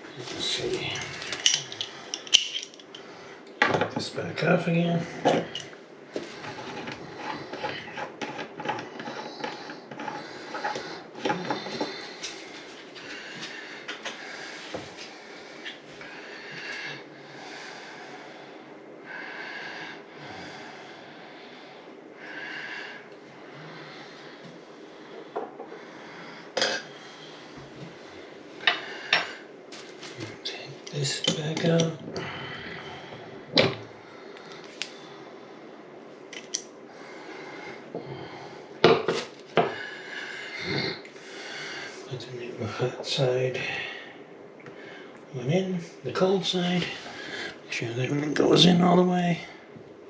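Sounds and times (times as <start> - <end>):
faint steady hiss: 0.0 - 50.0
person breathing: 5.0 - 29.5, 32.0 - 36.0, 36.8 - 38.8, 39.6 - 42.1, 46.8 - 47.7.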